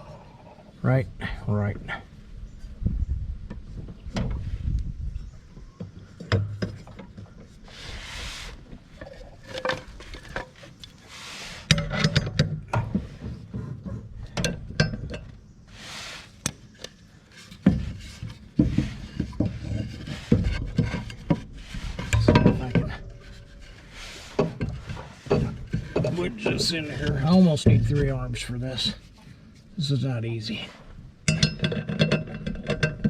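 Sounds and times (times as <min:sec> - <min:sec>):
metal tools clinking and knocking: 0:14.2 - 0:15.4, 0:22.0 - 0:29.0, 0:31.3 - 0:33.0
short hissing rushes: 0:15.7 - 0:16.4.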